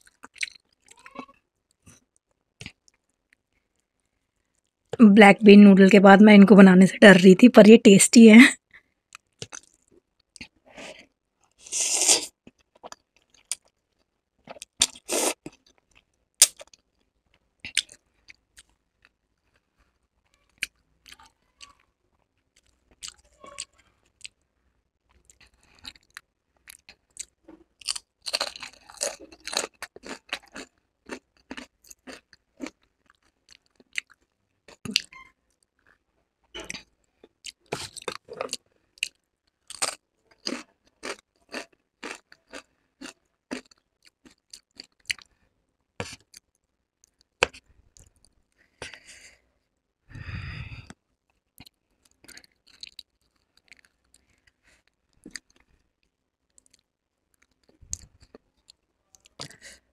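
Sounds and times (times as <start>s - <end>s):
chewing noodles: 0.0s - 3.8s, 9.1s - 16.8s, 17.6s - 24.4s, 25.1s - 36.0s, 36.7s - 45.4s, 51.6s - 59.6s.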